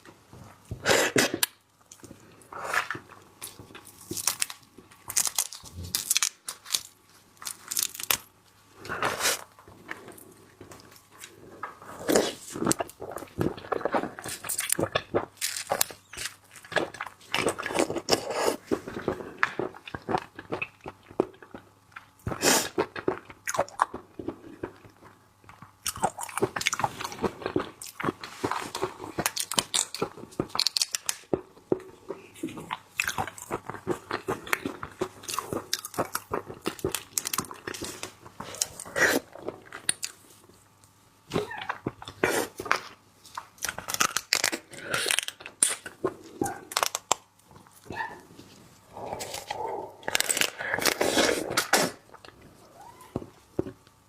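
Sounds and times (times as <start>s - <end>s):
crunching and biting seafood: 2.6s - 8.3s, 12.0s - 24.9s, 25.8s - 31.4s, 32.5s - 40.2s, 41.4s - 48.0s, 48.9s - 52.9s.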